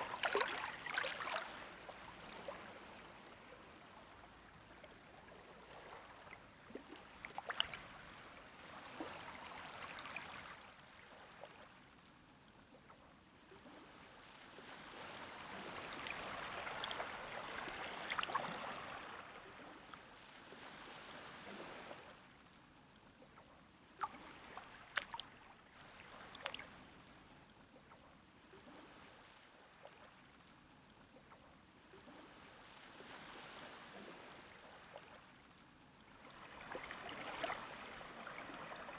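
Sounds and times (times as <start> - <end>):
water crackling on shore: 0.0 - 2.2
small waves lapping: 0.0 - 12.0, 13.4 - 22.6, 23.8 - 38.9.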